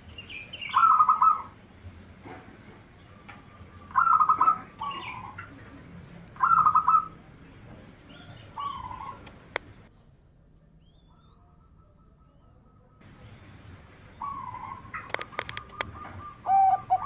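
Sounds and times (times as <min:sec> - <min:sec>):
dove cooing: 0:00.6 - 0:01.6, 0:03.0 - 0:07.2, 0:08.0 - 0:09.9, 0:11.1 - 0:17.0.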